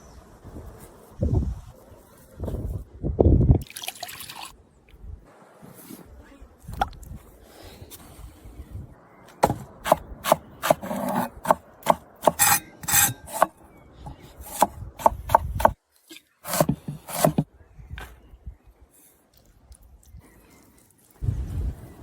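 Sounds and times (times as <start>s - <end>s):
scraping and knocking strokes: 9.4s - 13.5s, 16.4s - 17.4s.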